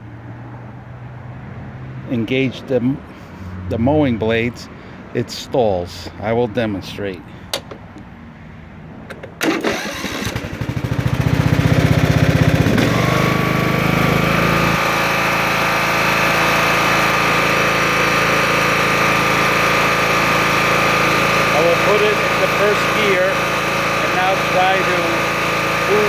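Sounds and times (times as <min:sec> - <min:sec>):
lawn tractor engine running: 0:07.4 - 0:08.2, 0:09.1 - 0:26.0
electric starter cranking: 0:09.1 - 0:26.0.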